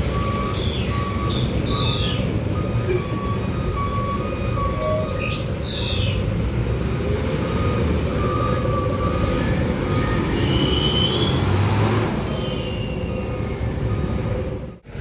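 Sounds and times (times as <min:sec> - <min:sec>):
low traffic rumble: 0:00.0 - 0:15.0
truck engine passing: 0:06.3 - 0:14.8.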